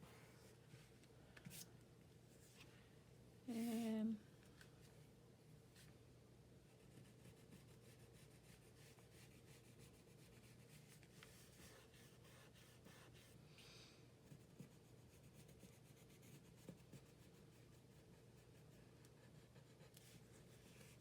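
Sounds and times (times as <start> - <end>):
pencil scratching on paper: 6.8 - 13.4, 14.3 - 21.0.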